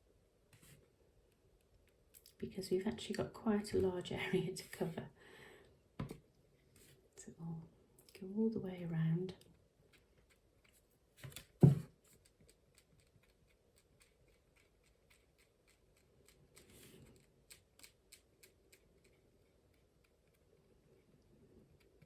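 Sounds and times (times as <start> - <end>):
knock: 11.6 - 11.9.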